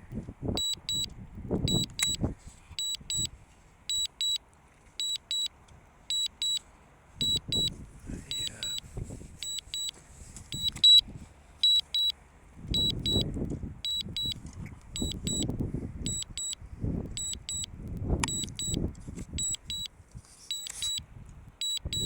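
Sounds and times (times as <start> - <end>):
wind gusts on microphone: 0.0 - 3.3, 12.6 - 20.2
short high warning beeps: 0.6 - 1.1, 1.7 - 2.2, 2.8 - 3.3, 3.9 - 4.4, 5.0 - 5.5, 6.1 - 6.6, 7.2 - 9.9, 10.5 - 11.0, 11.6 - 14.4, 15.0 - 18.8, 19.4 - 19.9, 20.5 - 21.0, 21.6 - 22.0.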